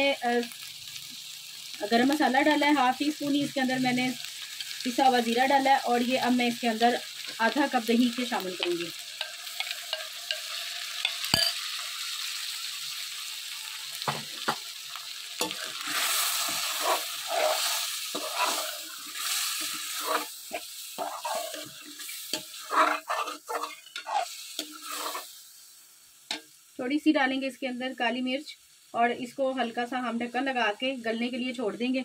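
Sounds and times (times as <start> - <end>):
chicken sizzling in hot oil: 0.0 - 32.0
spoon stirring and scraping: 9.2 - 11.6, 15.4 - 25.3.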